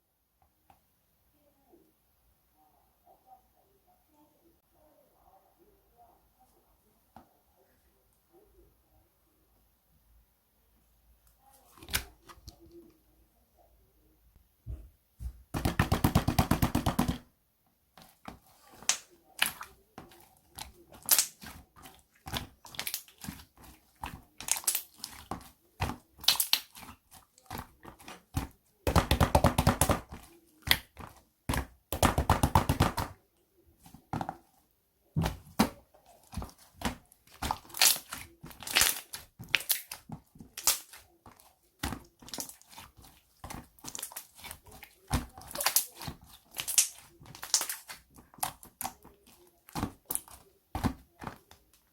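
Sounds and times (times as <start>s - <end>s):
slime squished with wet pops: 18.7s - 33.1s, 35.2s - 51.9s.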